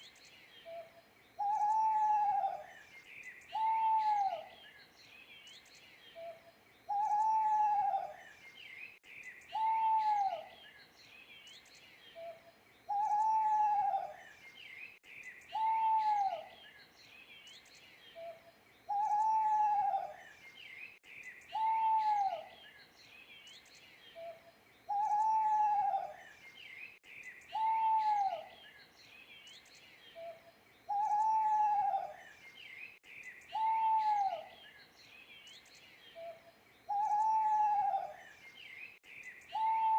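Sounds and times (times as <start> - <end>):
faint bird chirping: 0.0 - 39.9
owl hooting: 1.4 - 2.7, 3.5 - 4.5, 6.2 - 8.2, 9.5 - 10.5, 12.2 - 14.2, 15.5 - 16.5, 18.2 - 20.2, 21.5 - 22.5, 24.2 - 26.2, 27.5 - 28.5, 30.2 - 32.2, 33.5 - 34.6, 36.2 - 38.2, 39.5 - 39.9.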